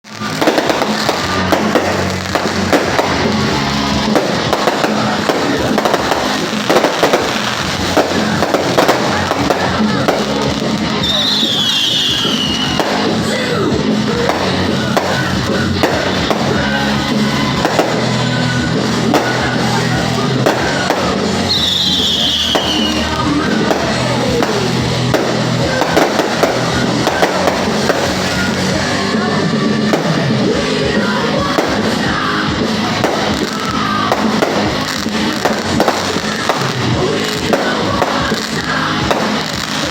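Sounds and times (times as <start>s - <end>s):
fireworks banging and crackling: 0.0s - 39.9s
music playing: 0.0s - 39.9s
high falling whistle: 11.0s - 12.8s, 21.5s - 23.0s.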